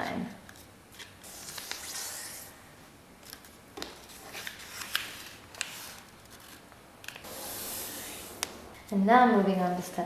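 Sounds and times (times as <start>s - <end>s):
paper rustling: 0.5s - 2.2s, 3.2s - 9.0s
paper crackling as folded: 0.6s - 2.0s.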